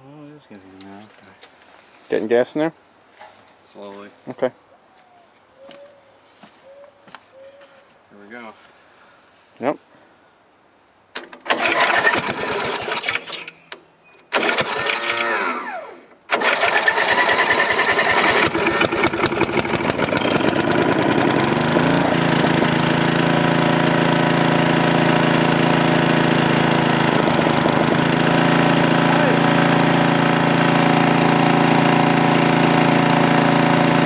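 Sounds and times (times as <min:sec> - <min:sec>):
tractor engine running: 0:11.4 - 0:13.4, 0:14.3 - 0:15.4, 0:16.3 - 0:34.0
engine cranking on starter: 0:11.4 - 0:13.6, 0:14.3 - 0:23.3, 0:26.4 - 0:34.0.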